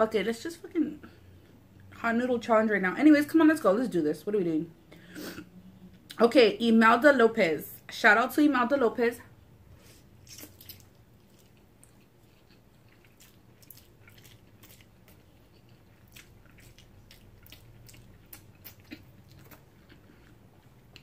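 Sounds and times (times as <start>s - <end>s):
person chewing noodles: 10.2s - 21.0s.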